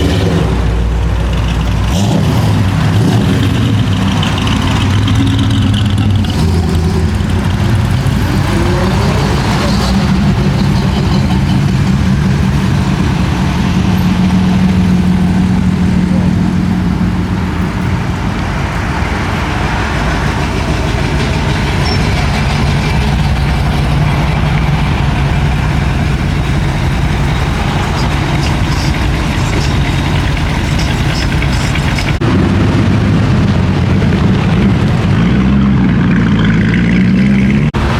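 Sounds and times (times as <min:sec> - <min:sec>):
car engine running: 0:00.0 - 0:37.9.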